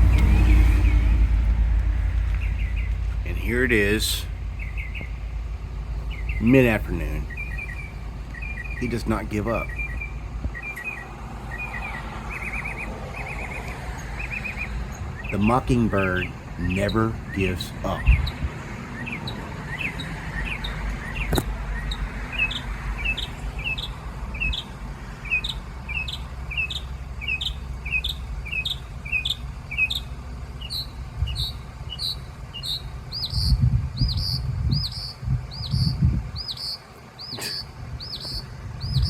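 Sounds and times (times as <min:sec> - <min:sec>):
low rumble: 0:00.0 - 0:08.8
mockingbird singing: 0:02.3 - 0:39.0.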